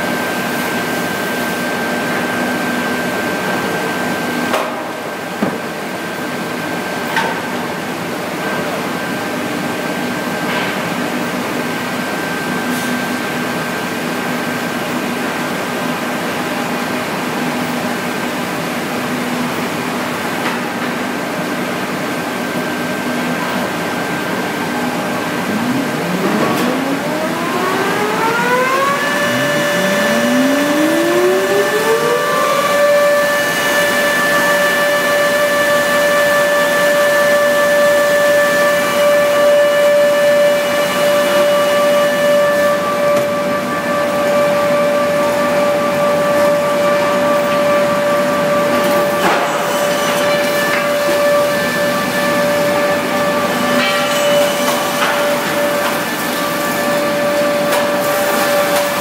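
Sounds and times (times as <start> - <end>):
motors spinning up with whine: 23.8 - 34.5
planing machine running: 23.9 - 35.0.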